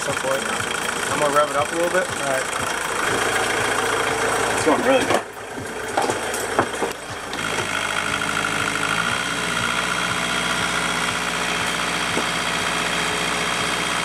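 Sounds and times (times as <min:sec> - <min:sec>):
light regular ticking: 0:00.0 - 0:08.7
boat engine running: 0:00.0 - 0:14.0.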